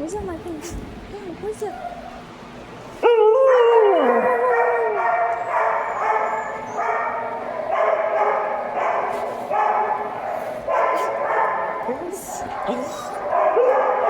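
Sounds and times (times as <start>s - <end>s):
dogs yipping: 1.6s - 2.3s, 3.0s - 14.0s
dogs howling: 3.0s - 14.0s.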